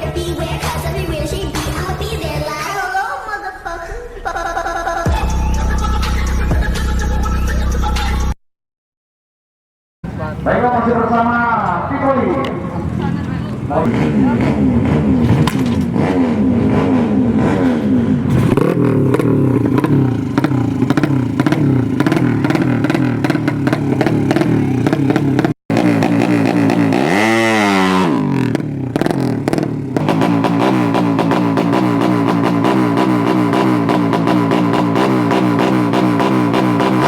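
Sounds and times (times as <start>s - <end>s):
motorcycle engine revving in blips: 12.4s - 37.0s.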